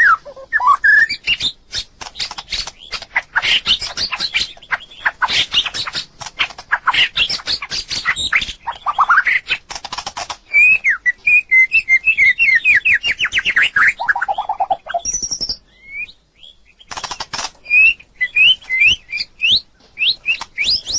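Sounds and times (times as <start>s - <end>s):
bird singing whistles and chatter: 0.0s - 6.1s, 10.5s - 20.9s.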